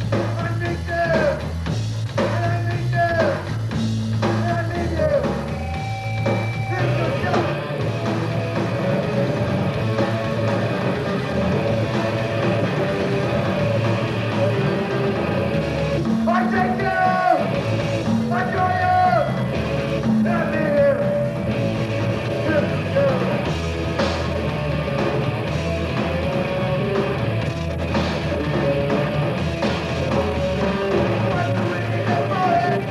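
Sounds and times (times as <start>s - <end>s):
guitar: 0.0s - 32.9s
punk rock band playing live: 0.0s - 32.9s.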